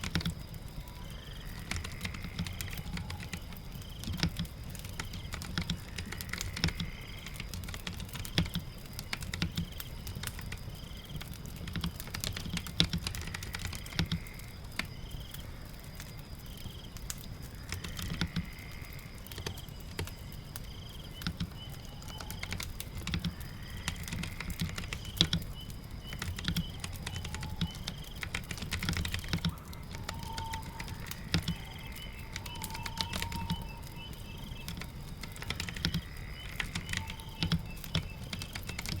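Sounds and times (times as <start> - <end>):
steady rain: 0.0 - 39.0
keyboard typing: 1.6 - 14.2, 21.2 - 39.0
fireplace crackling: 7.2 - 39.0.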